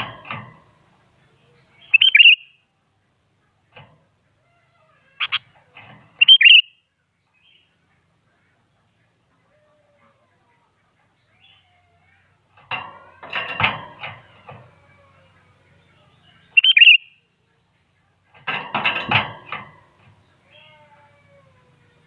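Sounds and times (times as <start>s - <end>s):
bird chattering calls: 1.7s - 2.5s, 5.2s - 5.5s, 6.2s - 6.7s, 16.4s - 17.1s
high bird call: 1.7s - 2.6s, 4.8s - 5.6s, 6.2s - 6.8s, 14.4s - 17.2s.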